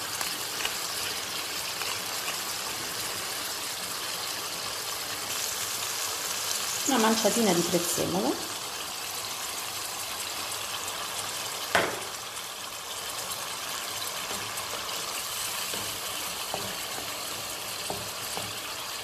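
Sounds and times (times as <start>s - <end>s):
vegetables sizzling in frying pan: 0.0s - 19.0s
sharp knock: 11.7s - 12.2s.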